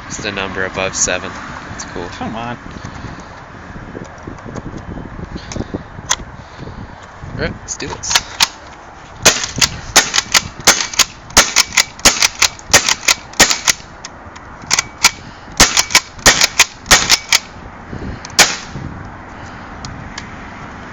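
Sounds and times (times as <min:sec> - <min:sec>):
paintball shotgun shots: 0:09.2 - 0:13.8, 0:14.8 - 0:17.5, 0:18.4 - 0:18.8.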